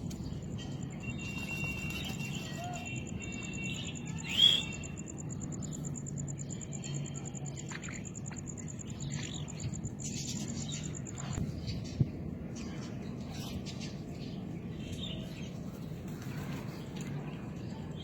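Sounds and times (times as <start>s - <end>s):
faint bird chirps: 0.2s - 11.8s.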